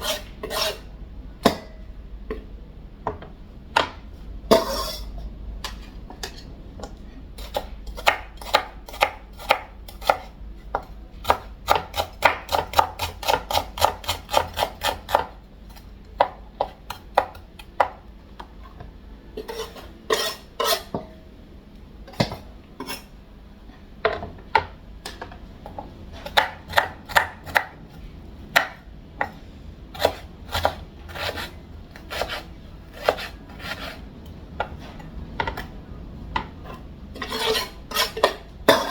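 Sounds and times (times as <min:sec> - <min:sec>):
knife chopping on cutting board: 0:07.4 - 0:15.3, 0:26.2 - 0:27.8, 0:30.0 - 0:34.0.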